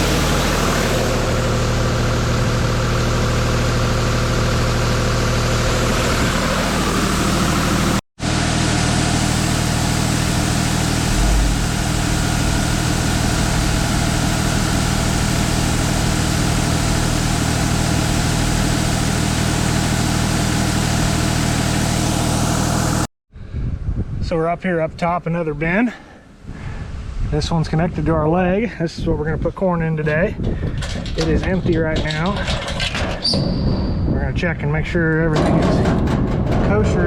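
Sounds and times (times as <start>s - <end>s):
engine running steadily: 0.0s - 23.1s.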